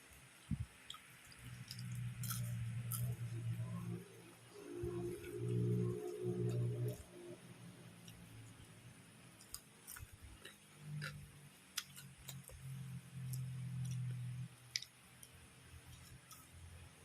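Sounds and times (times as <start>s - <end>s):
crunchy food being chewed: 0.1s - 4.0s, 4.8s - 7.2s, 8.0s - 17.0s
low humming tone: 1.4s - 14.8s.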